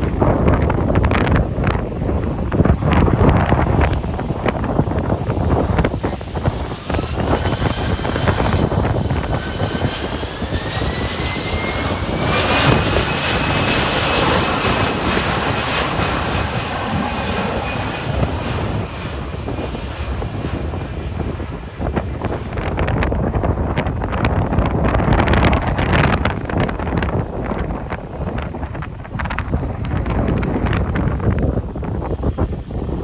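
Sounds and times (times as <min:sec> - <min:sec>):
wind buffeting microphone: 0:00.0 - 0:33.0
jet engines spooling up: 0:04.5 - 0:23.1.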